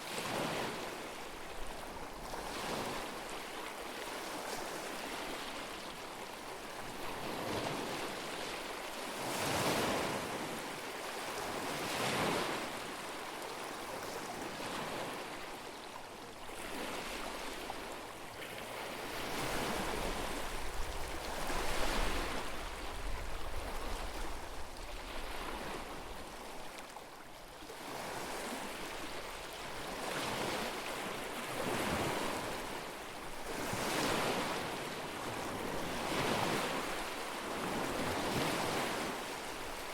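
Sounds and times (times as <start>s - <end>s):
lake waves washing onto shore: 0.0s - 15.7s, 16.4s - 27.0s, 27.6s - 39.9s
wind rumble on microphone: 19.0s - 26.5s.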